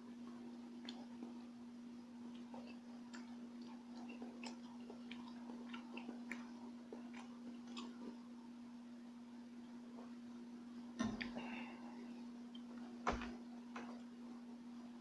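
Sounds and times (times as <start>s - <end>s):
steady low hum: 0.0s - 15.0s
person chewing: 0.4s - 8.4s.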